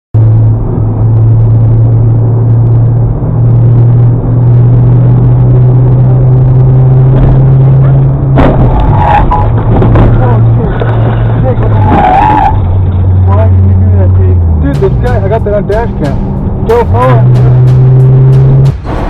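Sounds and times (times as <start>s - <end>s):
vehicle engine drone: 0.1s - 19.0s
clattering noise: 7.1s - 12.0s.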